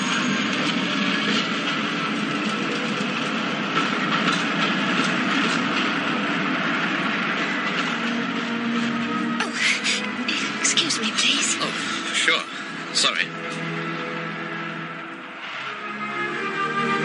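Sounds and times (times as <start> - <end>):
wheels clacking over rail joints: 0.0 - 9.0
train running noise: 0.0 - 17.0.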